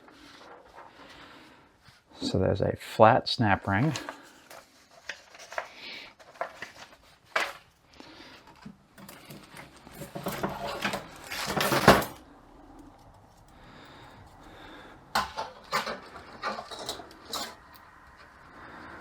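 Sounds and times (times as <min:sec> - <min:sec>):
metal parts clicking and clinking: 0:09.0 - 0:12.3, 0:15.1 - 0:18.4.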